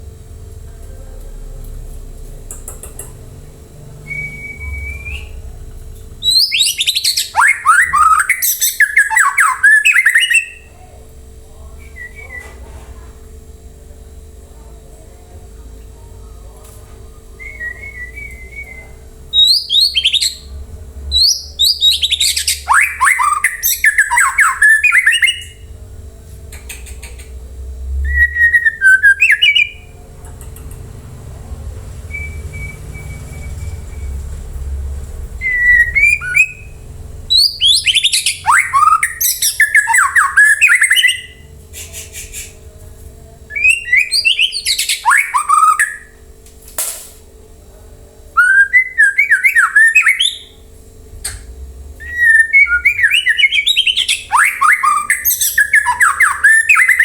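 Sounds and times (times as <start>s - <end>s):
low steady hum: 0.0s - 57.0s
bird singing fast varied whistles: 4.1s - 5.5s, 6.2s - 10.6s, 17.4s - 20.5s, 32.1s - 34.2s, 35.4s - 41.4s, 48.4s - 50.5s.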